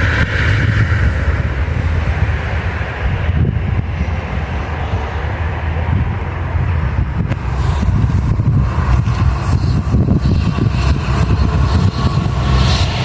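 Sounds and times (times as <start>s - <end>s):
train rumbling past: 0.0s - 13.0s.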